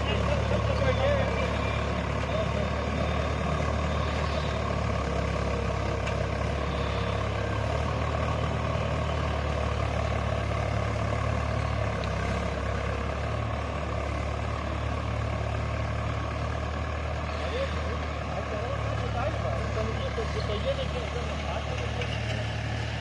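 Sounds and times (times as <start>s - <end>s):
tractor engine under load: 0.0s - 23.0s.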